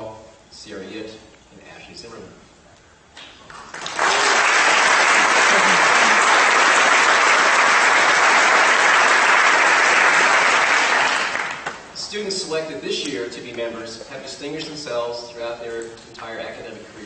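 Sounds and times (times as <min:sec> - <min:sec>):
audience applauding: 0:03.4 - 0:11.8.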